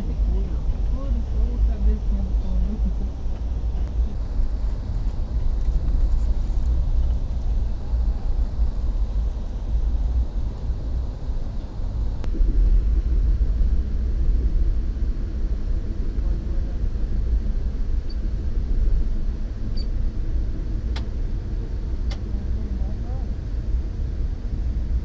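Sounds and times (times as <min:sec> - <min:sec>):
train rumble inside carriage: 0:00.0 - 0:25.0.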